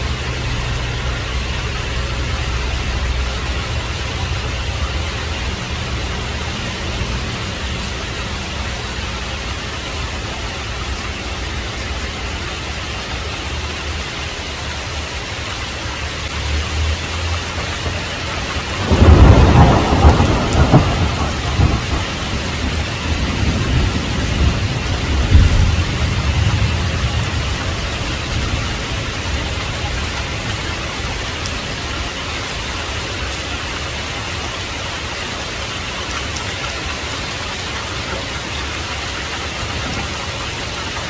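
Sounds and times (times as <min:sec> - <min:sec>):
heavy rain falling: 0:00.0 - 0:41.0
thunder rumbling: 0:17.4 - 0:33.0
loud thunderclap: 0:18.6 - 0:29.1.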